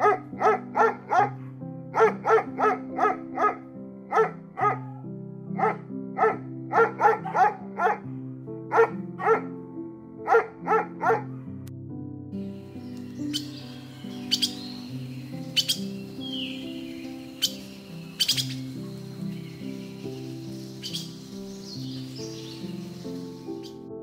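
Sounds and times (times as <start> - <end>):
dog barking: 0.0 - 9.6, 10.2 - 11.6
background music with chords: 0.0 - 24.0.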